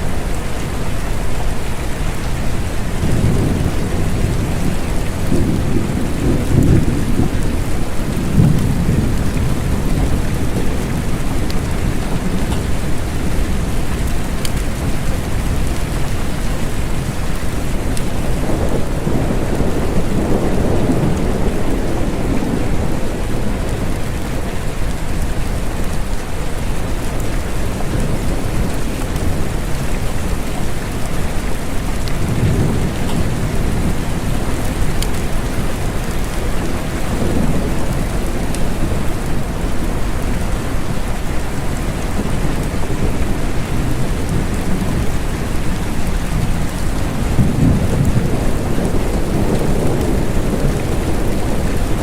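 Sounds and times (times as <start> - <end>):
low rolling thunder: 0.0 - 52.0
steady rain hissing: 0.0 - 52.0.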